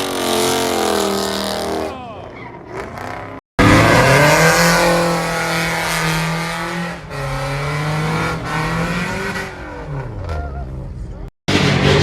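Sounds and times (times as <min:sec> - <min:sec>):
car engine revving high: 0:03.6 - 0:10.3.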